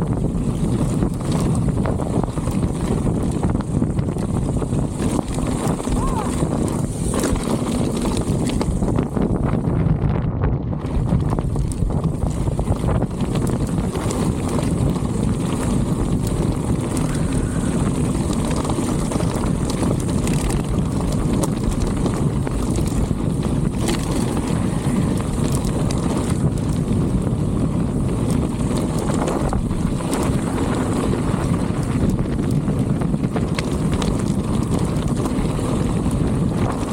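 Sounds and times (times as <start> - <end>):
wind buffeting microphone: 0.0 - 36.9.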